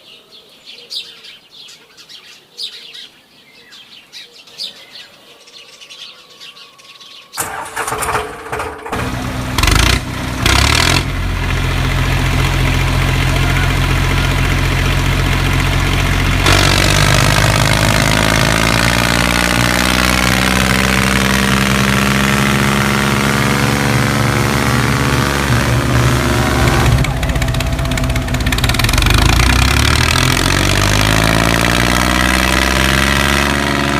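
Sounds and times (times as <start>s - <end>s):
engine cranking and running: 7.4s - 33.9s.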